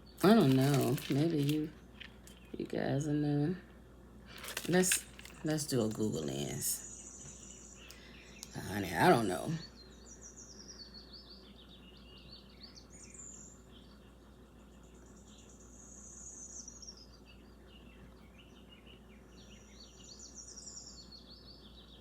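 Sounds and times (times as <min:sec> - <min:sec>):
bird chirping and twittering: 0:04.4 - 0:22.0.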